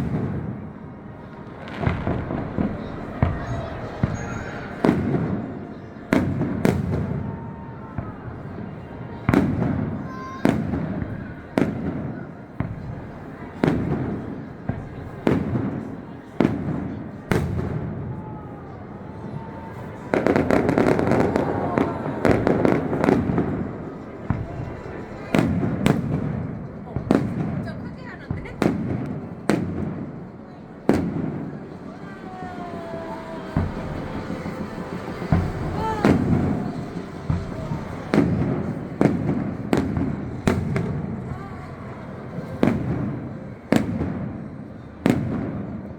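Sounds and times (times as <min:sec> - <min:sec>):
firework bangs and crackling: 0:00.0 - 0:45.9
firework whistles: 0:33.0 - 0:39.8.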